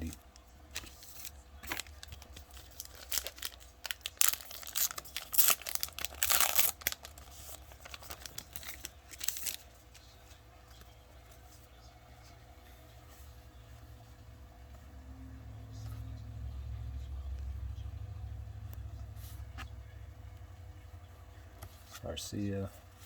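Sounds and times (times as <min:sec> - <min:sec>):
card wrapper tearing and crinkling: 0:00.0 - 0:09.7.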